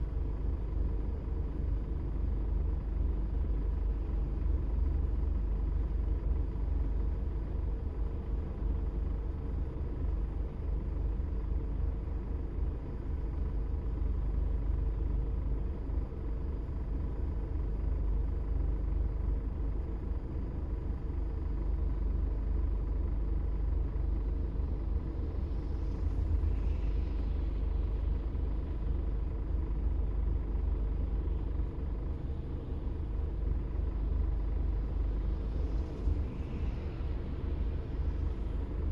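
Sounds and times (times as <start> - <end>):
car engine and tyres rumbling: 23.8 - 38.9.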